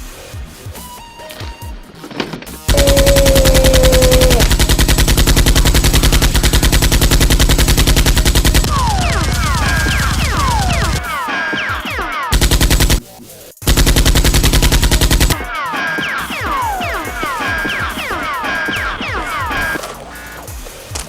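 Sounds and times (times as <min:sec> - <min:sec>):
short falling whistles: 0:02.7 - 0:04.6
automatic gunfire: 0:02.7 - 0:11.1, 0:12.3 - 0:13.0, 0:13.7 - 0:20.3.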